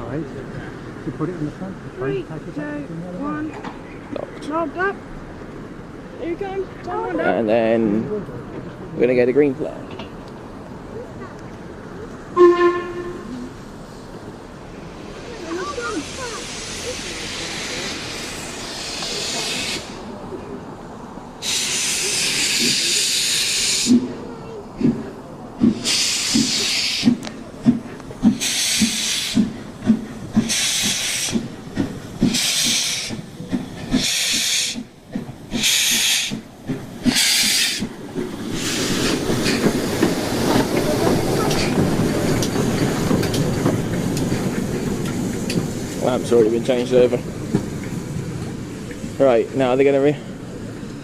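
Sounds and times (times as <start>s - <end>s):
train rolling: 0.0s - 51.0s
steam locomotive exhaust chuffs: 15.0s - 20.3s, 21.4s - 51.0s
drain cocks hissing: 15.3s - 20.2s, 21.4s - 24.1s, 25.7s - 27.2s, 28.3s - 29.5s, 30.3s - 34.9s, 35.5s - 41.9s.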